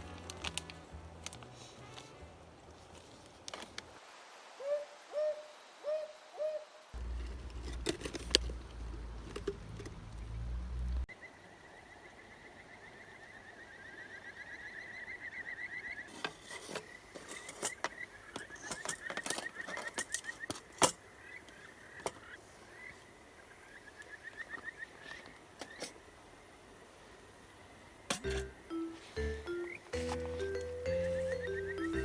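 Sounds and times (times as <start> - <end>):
owl hooting: 4.3 - 7.0.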